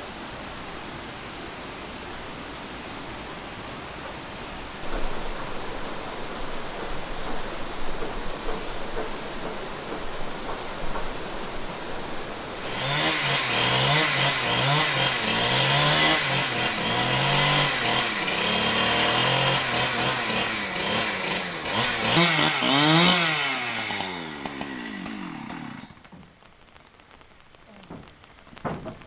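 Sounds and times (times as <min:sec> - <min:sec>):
chainsaw revving: 0:12.0 - 0:26.5.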